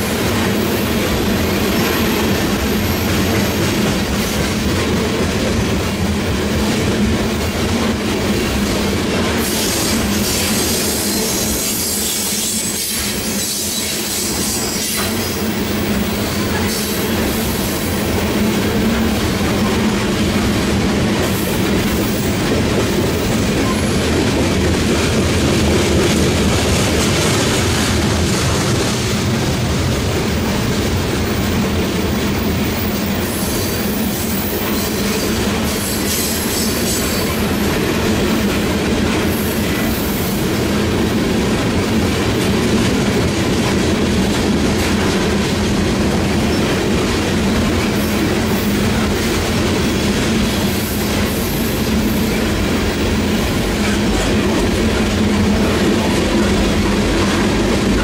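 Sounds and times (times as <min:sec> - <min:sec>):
freight train wheels rumbling: 0:00.0 - 0:58.0
high wheel squeal: 0:09.5 - 0:15.5.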